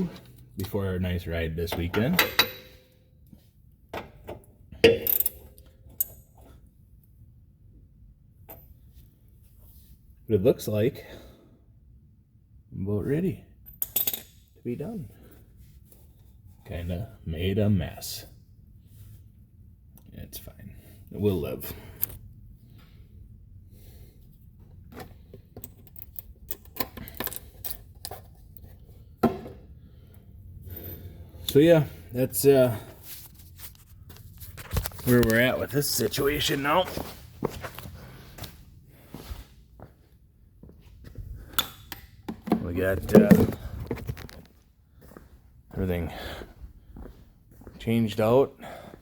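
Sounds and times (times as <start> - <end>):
metallic tool clanks: 1.7 - 3.0, 4.8 - 6.4.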